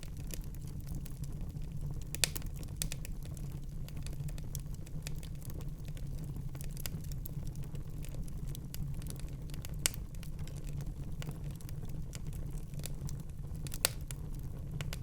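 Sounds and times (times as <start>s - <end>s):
fire crackling: 0.0s - 15.0s
sharp pops of fire: 2.1s - 3.2s.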